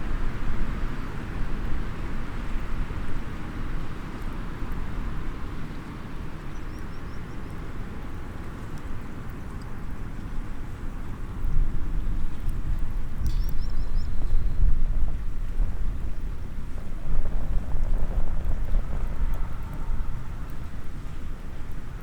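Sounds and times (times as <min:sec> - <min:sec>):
low outdoor rumble: 0:12.6 - 0:22.0.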